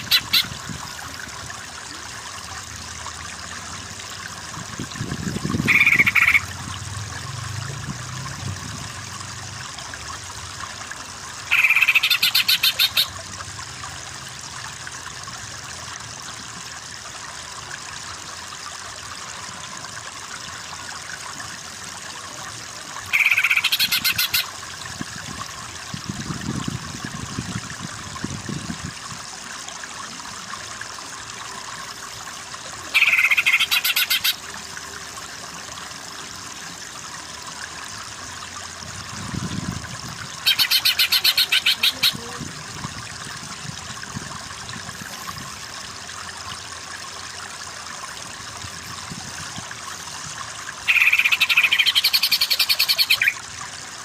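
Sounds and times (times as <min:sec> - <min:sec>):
bird stuttering trill: 0:00.0 - 0:00.5, 0:05.7 - 0:06.5, 0:11.5 - 0:13.1, 0:23.1 - 0:24.5, 0:33.0 - 0:34.4, 0:40.4 - 0:42.2, 0:50.9 - 0:53.4
running water: 0:00.0 - 0:54.0.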